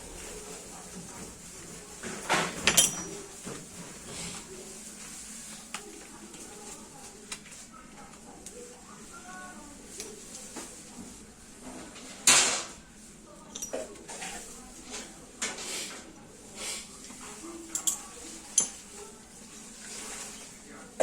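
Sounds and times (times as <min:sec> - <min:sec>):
metal tools clanking: 0:02.4 - 0:03.3, 0:13.5 - 0:13.9, 0:17.7 - 0:18.8.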